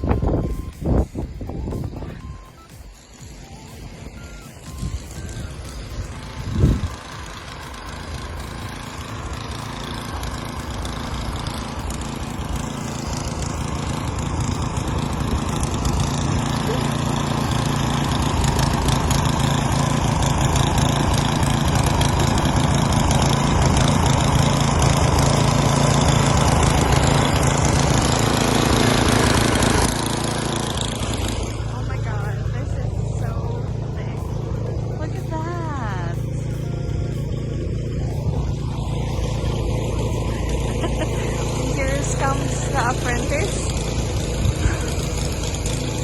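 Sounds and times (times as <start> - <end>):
engine running: 0.0 - 46.0.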